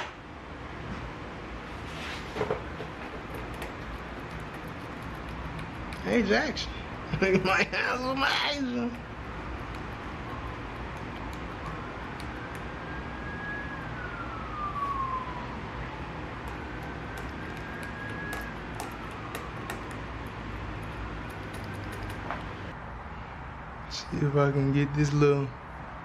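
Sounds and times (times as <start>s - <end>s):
steady low hum: 0.4s - 8.2s, 8.8s - 22.8s
siren wailing: 9.0s - 22.0s.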